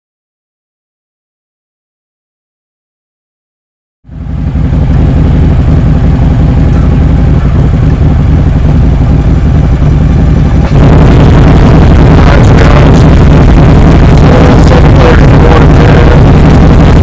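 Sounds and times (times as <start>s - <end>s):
motorcycle engine idling: 4.1s - 17.0s.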